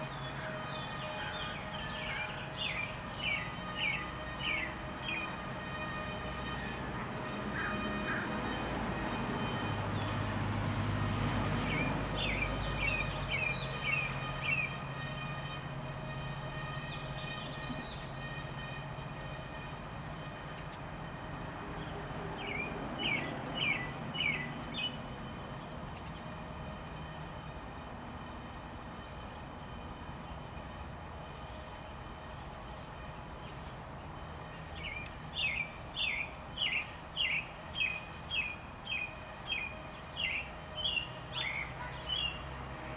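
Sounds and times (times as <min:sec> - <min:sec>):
robin singing whistled notes: 0:34.8 - 0:42.4.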